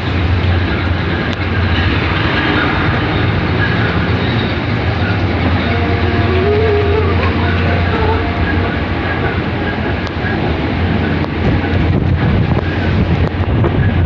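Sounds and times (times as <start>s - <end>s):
deep rumble: 0.0s - 14.0s
heavy storm rain: 0.0s - 14.0s
wind: 0.0s - 14.0s
faint rising tone: 5.0s - 10.4s.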